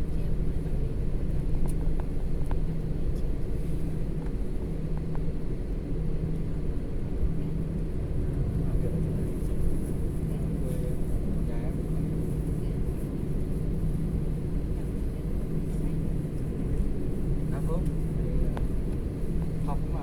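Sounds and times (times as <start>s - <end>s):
airliner engines rumbling in cabin: 0.0s - 20.0s
constant low hum: 0.0s - 20.0s.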